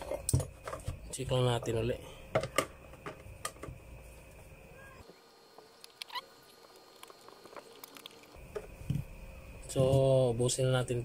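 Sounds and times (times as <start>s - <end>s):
clicks and light scratching: 5.8s - 8.7s.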